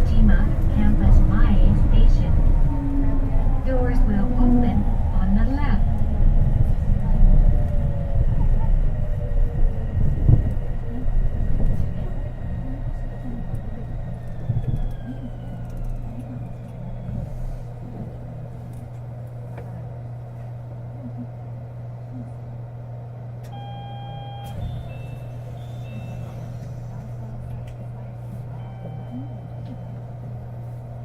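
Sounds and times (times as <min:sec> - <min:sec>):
low hum of standing train: 0:00.0 - 0:31.0
train motor whine: 0:11.3 - 0:18.2, 0:23.4 - 0:27.2.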